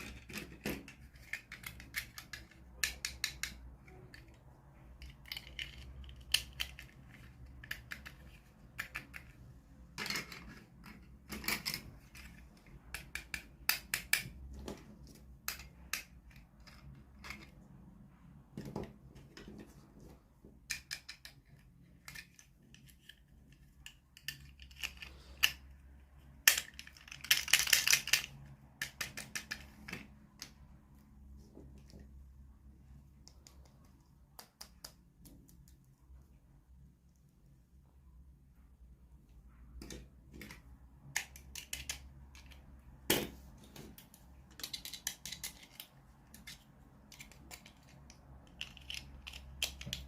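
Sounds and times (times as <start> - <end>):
plastic pieces clicking and snapping: 0.0 - 17.7, 20.6 - 30.6, 39.8 - 50.0.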